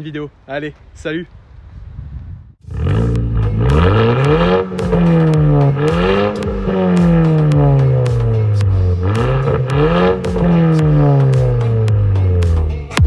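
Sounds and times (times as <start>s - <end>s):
car engine accelerating: 2.6s - 13.0s.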